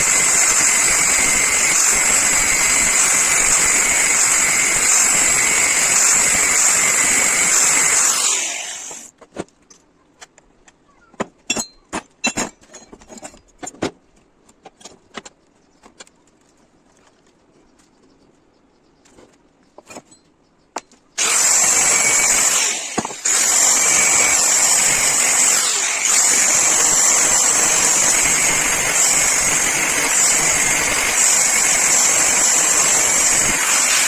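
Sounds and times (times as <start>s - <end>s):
power tool whining: 0.0s - 9.1s, 21.2s - 34.0s.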